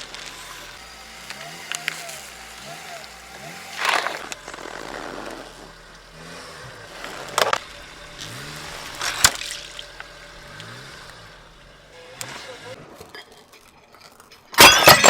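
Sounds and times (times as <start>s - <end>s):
car tyre crushing objects: 0.0s - 15.0s.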